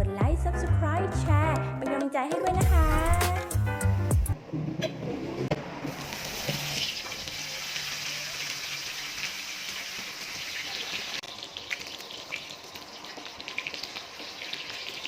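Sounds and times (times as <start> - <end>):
meat sizzling on a hot pan: 6.0 - 15.0.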